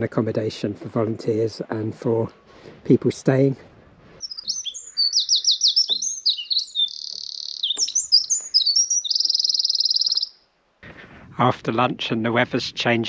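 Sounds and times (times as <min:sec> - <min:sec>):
songbird singing: 0:04.2 - 0:10.6.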